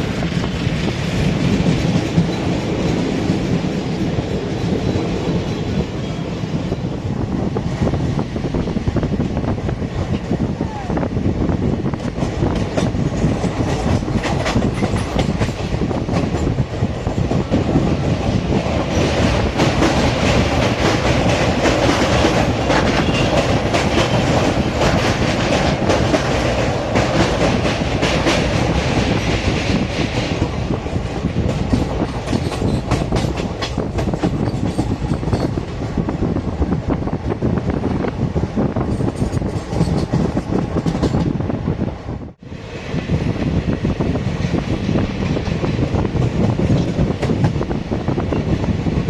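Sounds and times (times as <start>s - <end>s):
train wheels clicking over rail joints: 0.0s - 6.4s, 11.8s - 36.2s, 38.7s - 41.4s, 43.1s - 48.8s
train rumble: 0.0s - 49.0s.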